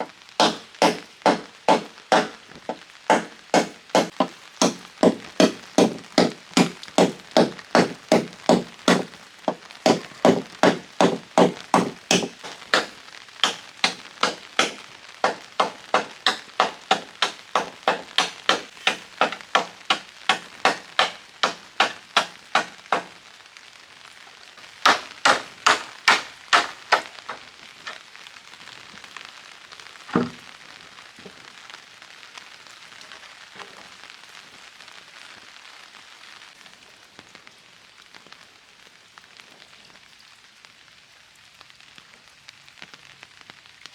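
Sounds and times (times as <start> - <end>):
chopping wood: 0.0 - 23.2, 24.8 - 28.0, 30.1 - 30.4
rain hiss: 0.0 - 43.9.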